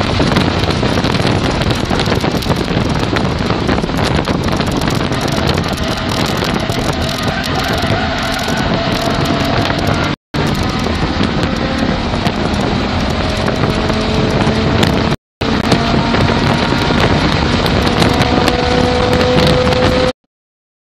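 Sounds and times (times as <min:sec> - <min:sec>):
car engine accelerating hard: 0:00.0 - 0:20.1
wind noise: 0:00.0 - 0:20.1.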